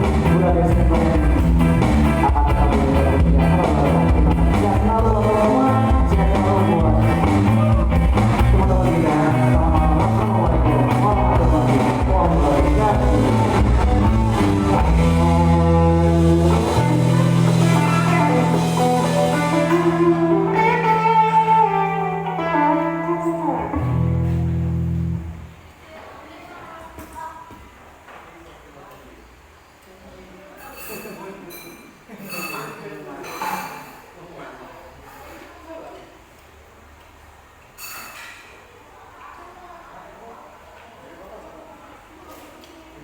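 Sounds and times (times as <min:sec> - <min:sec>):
held chord with low bass: 0:00.0 - 0:25.5
rock band playing: 0:00.0 - 0:25.5.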